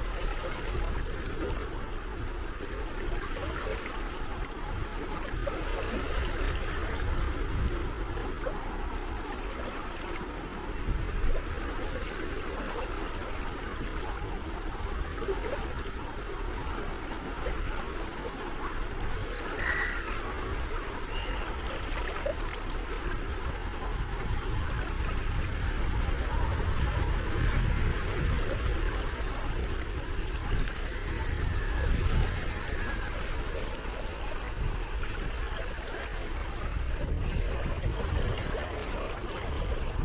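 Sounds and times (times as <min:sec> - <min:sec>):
small waves lapping at shore: 0:00.0 - 0:40.0
short bird call: 0:19.6 - 0:20.4.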